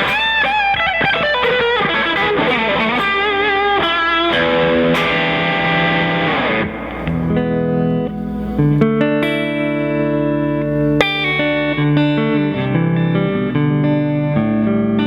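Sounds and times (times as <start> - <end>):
electric guitar lead line: 0.0 - 15.0
guitar chords ringing: 0.0 - 15.0.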